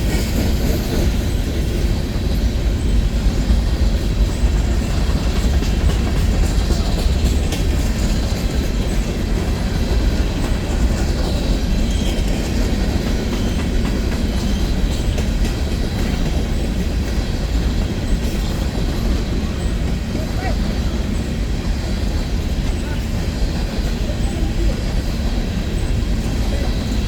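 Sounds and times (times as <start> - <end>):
freight train cars rumbling past: 0.0 - 27.0.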